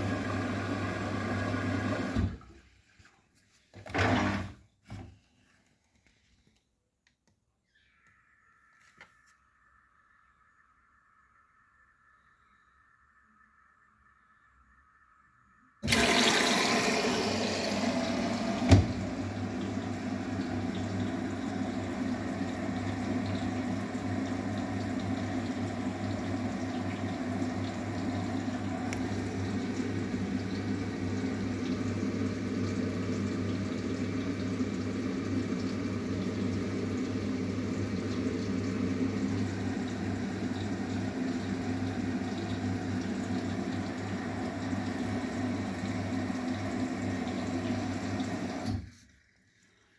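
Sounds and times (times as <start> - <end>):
water rushing into washing machine: 0.0 - 2.7, 3.8 - 5.1, 15.8 - 49.9.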